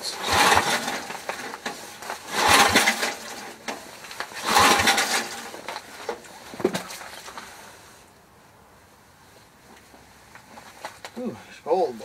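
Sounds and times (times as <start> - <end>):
engine starter cranking: 0.2 - 6.2.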